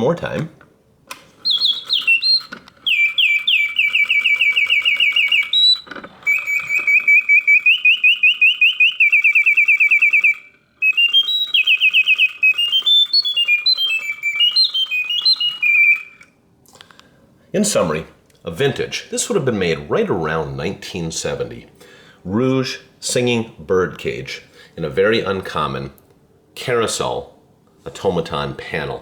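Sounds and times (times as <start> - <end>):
mechanical bird whistle trilling: 1.4 - 16.3.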